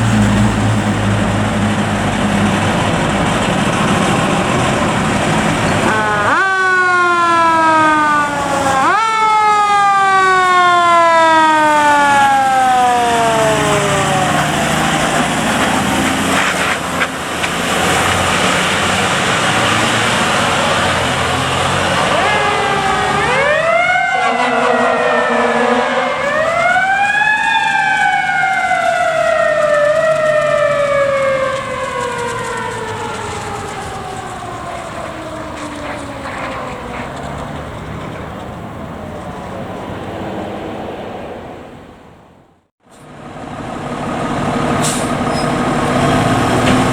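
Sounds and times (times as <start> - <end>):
fire truck siren wailing: 0.0 - 41.1, 42.8 - 46.9
heavy traffic noise: 0.0 - 46.9.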